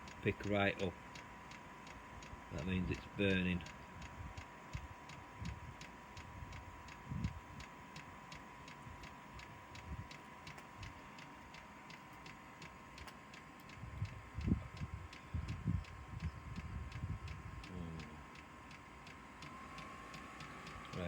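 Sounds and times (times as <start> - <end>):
heater clicking: 0.0 - 21.0.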